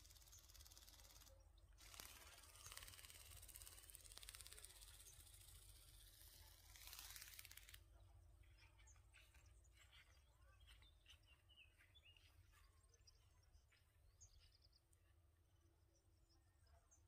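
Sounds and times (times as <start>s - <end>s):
faint bird chirps: 7.9s - 17.0s.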